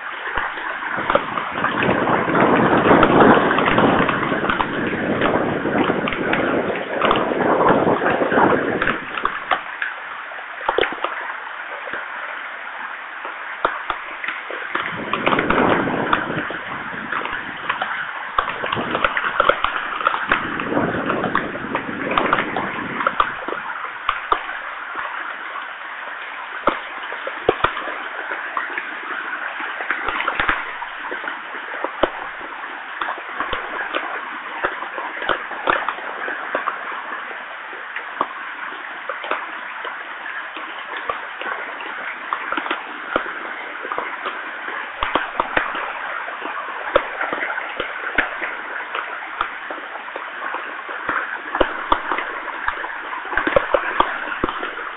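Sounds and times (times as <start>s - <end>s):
thunder rumbling: 0.0s - 9.7s, 14.7s - 24.7s
heavy rain falling: 0.0s - 54.9s
raindrops tapping close by: 0.0s - 54.9s.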